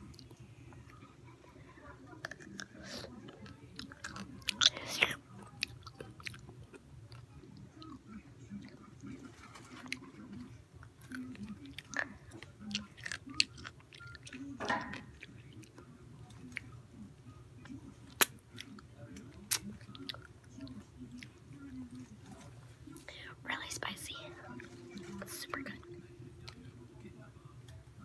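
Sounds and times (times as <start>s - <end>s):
person chewing a pickle: 2.2s - 8.8s, 9.8s - 16.7s, 17.6s - 22.1s.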